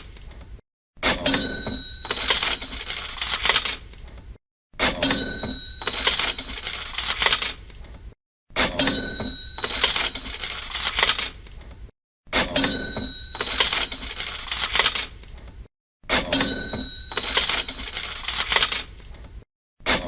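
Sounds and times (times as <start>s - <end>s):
cash register bell ding: 1.1s - 3.5s, 4.9s - 7.2s, 8.6s - 11.2s, 12.4s - 14.7s, 16.1s - 18.7s
jingling coins rattle: 2.0s - 4.0s, 5.7s - 7.8s, 9.2s - 11.5s, 12.6s - 15.2s, 17.1s - 19.1s.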